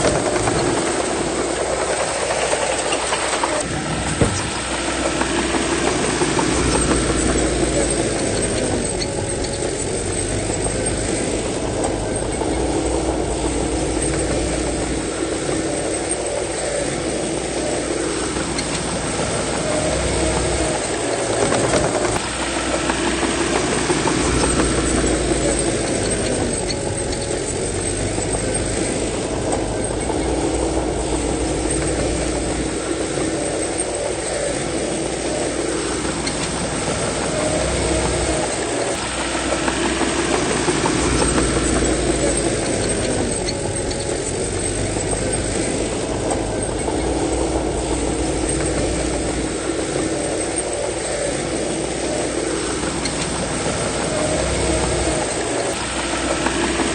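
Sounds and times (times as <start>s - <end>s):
bulldozer diesel engine under load: 0.0s - 56.9s.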